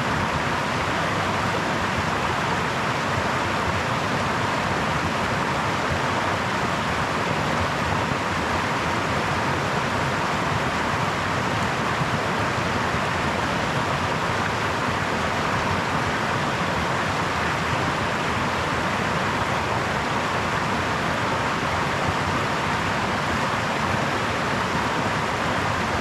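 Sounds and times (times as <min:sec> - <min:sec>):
brook babbling over stones: 0:00.0 - 0:26.0.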